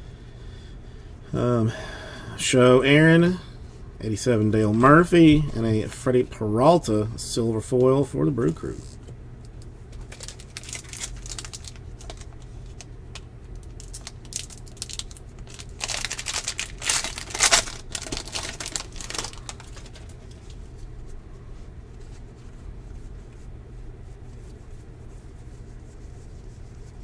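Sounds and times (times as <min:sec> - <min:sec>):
steady low hum: 0:00.0 - 0:27.0
foil wrapper crinkling and tearing: 0:10.0 - 0:20.6.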